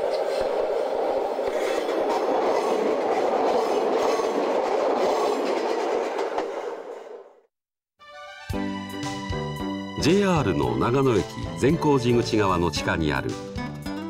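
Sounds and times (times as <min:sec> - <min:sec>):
electric train passing: 0:00.0 - 0:07.5.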